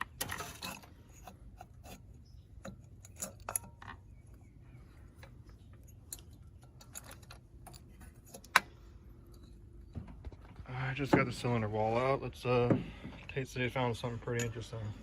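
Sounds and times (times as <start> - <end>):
metal clicks and light knocks: 2.6 - 4.1.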